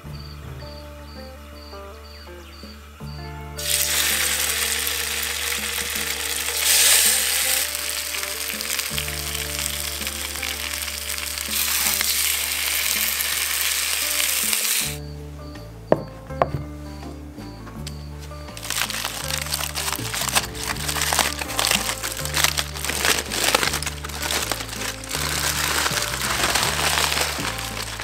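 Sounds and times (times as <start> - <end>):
background music: 0.0 - 28.0
food sizzling in hot oil: 3.6 - 15.0.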